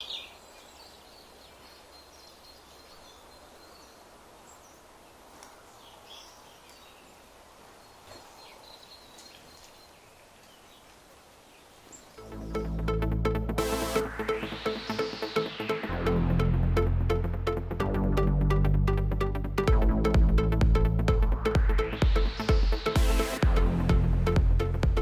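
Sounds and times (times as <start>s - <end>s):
faint outdoor ambience: 0.0s - 25.0s
electronic music with heavy bass: 12.2s - 25.0s.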